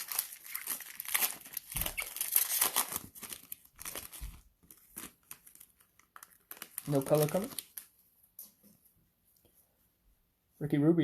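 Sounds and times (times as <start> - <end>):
cellophane wrapper tearing and crinkling: 0.0 - 8.0.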